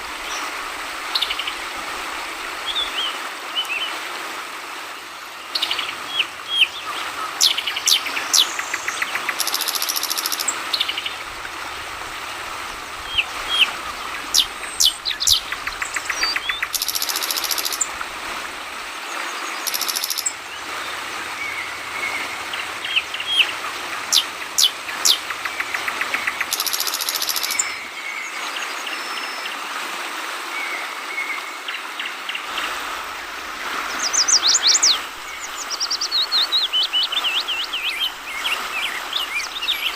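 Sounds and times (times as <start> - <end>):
flowing water babbling: 0.0 - 39.9
bird chirps and trills: 5.5 - 11.2, 13.0 - 18.0, 19.5 - 28.0, 33.9 - 39.9.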